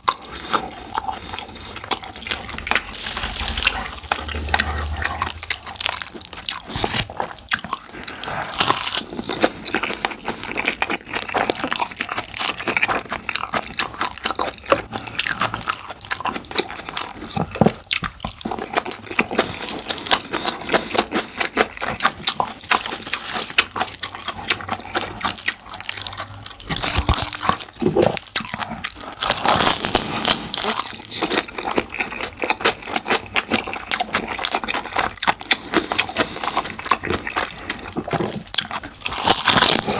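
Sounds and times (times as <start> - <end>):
person chewing with wet smacking: 0.0 - 39.9
crunching: 0.1 - 9.3, 25.8 - 31.2, 36.9 - 39.9.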